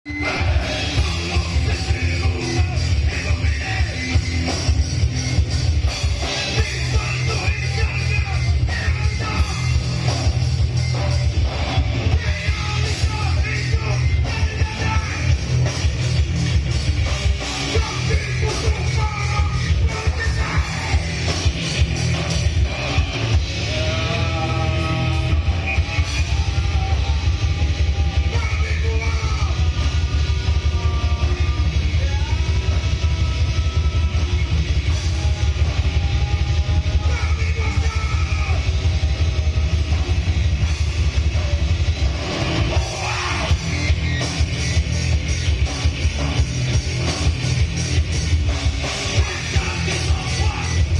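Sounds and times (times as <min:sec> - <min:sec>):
punk rock band playing: 0:00.0 - 0:50.9
person yelling vocals: 0:42.8 - 0:43.6.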